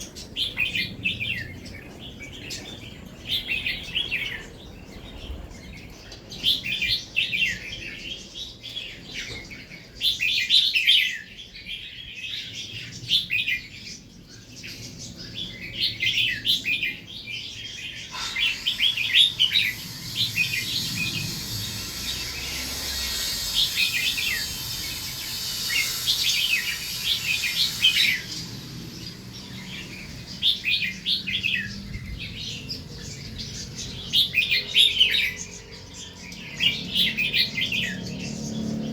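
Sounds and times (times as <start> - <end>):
birds chirping: 14.0 - 38.9
steady hiss: 17.6 - 32.5.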